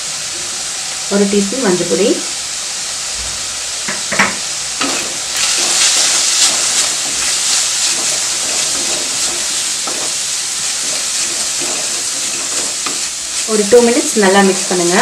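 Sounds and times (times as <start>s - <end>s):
vegetables sizzling in hot oil: 0.0s - 15.0s
spatula scraping pan: 4.8s - 15.0s.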